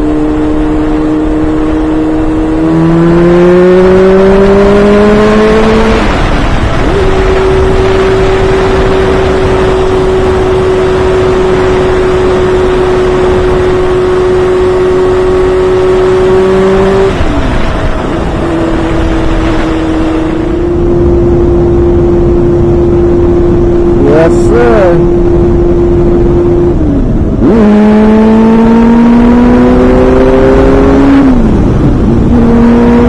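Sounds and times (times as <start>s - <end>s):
motorcycle engine at high revs: 0.0s - 33.0s
wind rush: 0.0s - 33.0s.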